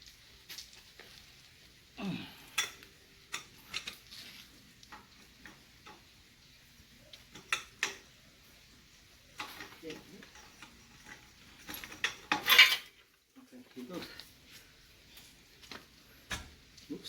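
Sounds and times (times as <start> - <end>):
steel hand tools clinking: 9.4 - 13.0.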